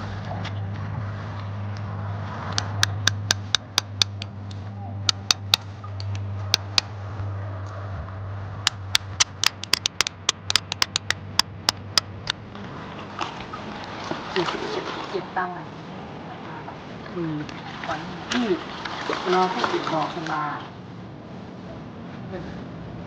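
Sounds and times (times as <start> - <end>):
low hum: 0.0 - 19.0
hand tool tapping on rock: 2.6 - 4.3, 5.1 - 6.9, 8.7 - 12.4.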